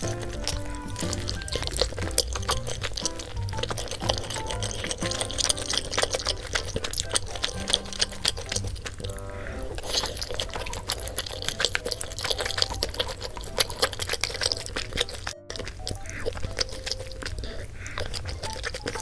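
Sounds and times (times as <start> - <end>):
wet slurping and chewing: 0.0 - 19.0.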